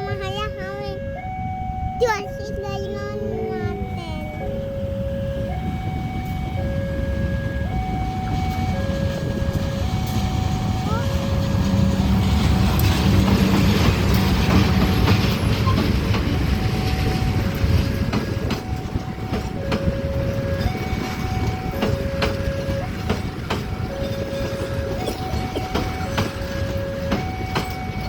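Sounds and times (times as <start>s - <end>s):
two-tone electronic alarm: 0.0s - 11.5s, 16.4s - 28.0s
train rumbling past: 0.0s - 28.0s
wheels clicking over rail joints: 8.0s - 28.0s.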